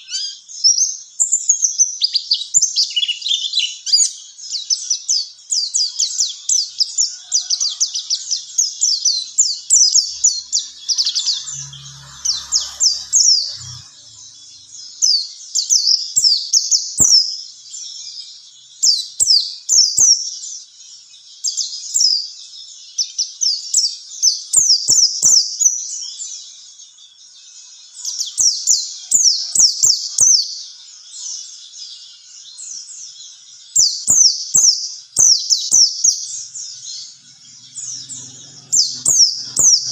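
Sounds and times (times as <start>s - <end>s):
bird twittering: 5.7s - 17.2s, 34.0s - 39.9s.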